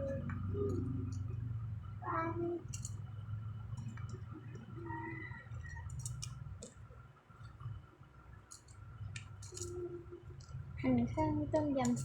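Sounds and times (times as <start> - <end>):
steady low hum: 0.0 - 12.0
light clicks and taps: 11.5 - 12.0.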